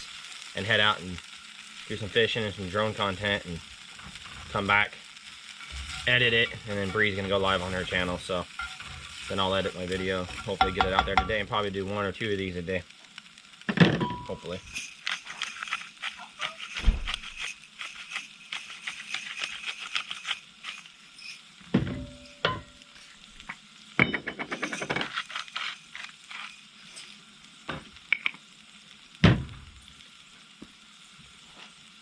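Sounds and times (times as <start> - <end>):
food sizzling in a pan: 0.0 - 32.0
utensil knocking against pan: 10.6 - 11.4.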